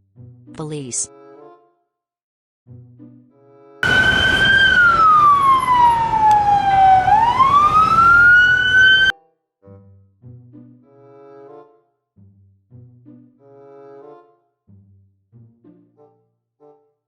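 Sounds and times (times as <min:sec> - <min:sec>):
noisy rumble: 0:03.8 - 0:09.1
police siren wailing: 0:03.8 - 0:09.1.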